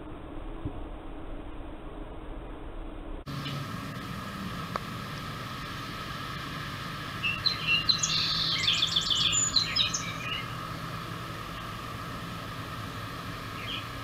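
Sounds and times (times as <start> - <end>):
steady background hum: 0.0 - 14.0
songbird singing rapid high notes: 3.3 - 4.4, 5.0 - 14.0.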